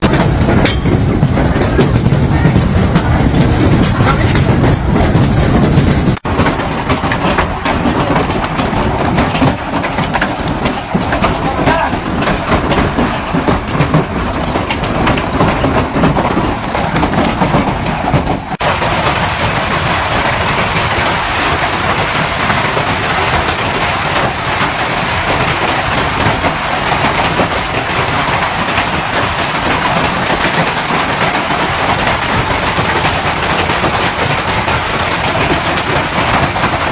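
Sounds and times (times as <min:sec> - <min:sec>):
heavy rain roaring: 0:00.0 - 0:36.9.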